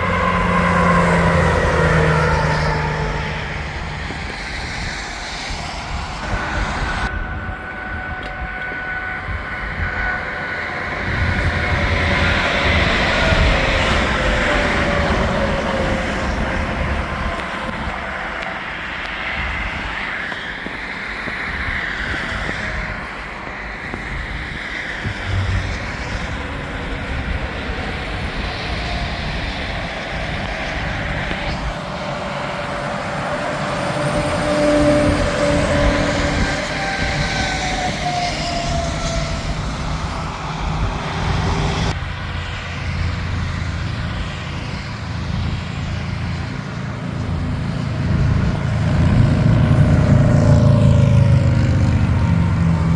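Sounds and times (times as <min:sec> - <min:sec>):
highway traffic passing: 0:00.0 - 0:52.9.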